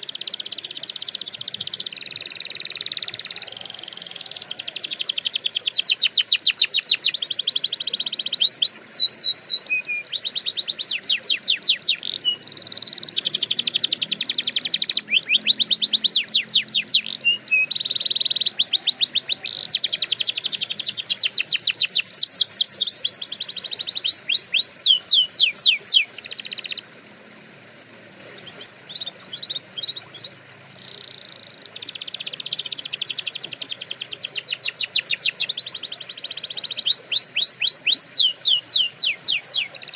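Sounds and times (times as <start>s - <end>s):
canary singing trills: 0.0s - 27.3s, 28.4s - 39.9s.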